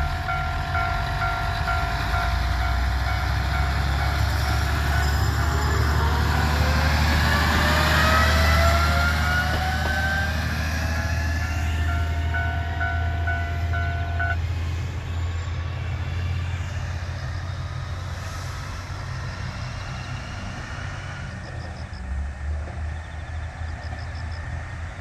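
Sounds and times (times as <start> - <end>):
level-crossing alarm dinging: 0.0 - 6.9, 7.7 - 14.4
diesel railcar rumbling past: 0.0 - 25.0.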